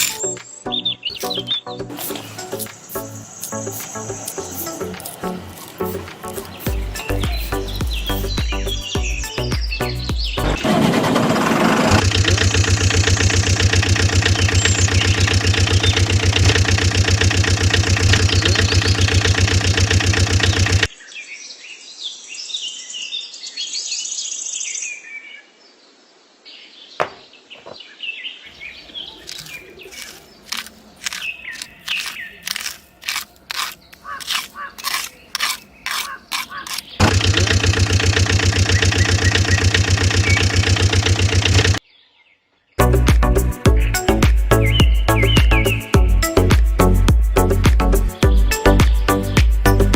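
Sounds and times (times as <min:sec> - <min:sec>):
sharp clicks: 0:00.0 - 0:00.5, 0:01.1 - 0:08.4, 0:11.9 - 0:20.9, 0:29.2 - 0:41.8
birds chirping: 0:00.0 - 0:21.0, 0:26.8 - 0:49.9
small engine running: 0:01.9 - 0:08.4, 0:10.4 - 0:20.9, 0:29.2 - 0:41.8.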